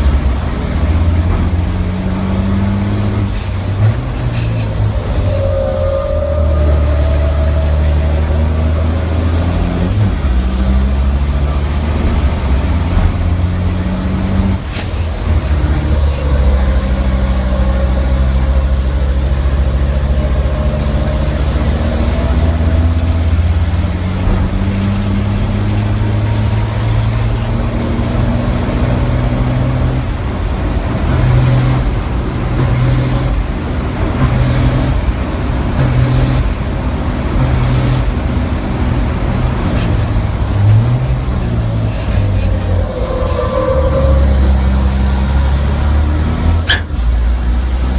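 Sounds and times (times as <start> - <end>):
truck diesel engine running hard: 0.0 - 47.9
turbo whistle: 3.4 - 11.5, 14.8 - 23.3, 29.6 - 47.8
high chirps: 4.0 - 11.0.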